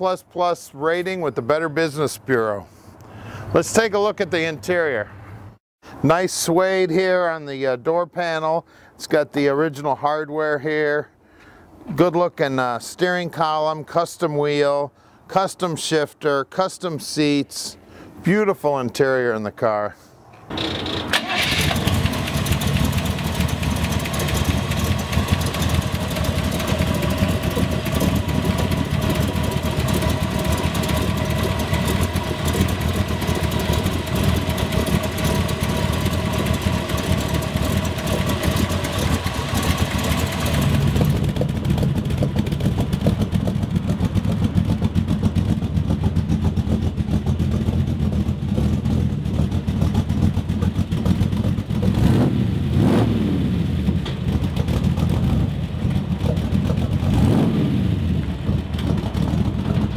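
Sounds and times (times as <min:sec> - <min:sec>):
car engine revving and idling: 0:20.6 - 0:59.9
deep exhaust note: 0:21.9 - 0:59.9.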